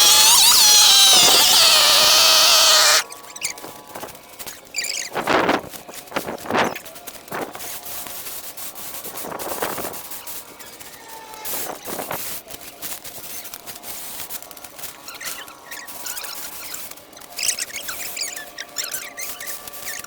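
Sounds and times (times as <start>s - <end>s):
short high squeaks: 0.0s - 3.5s, 15.1s - 20.0s
scratching and rustling: 0.0s - 20.0s.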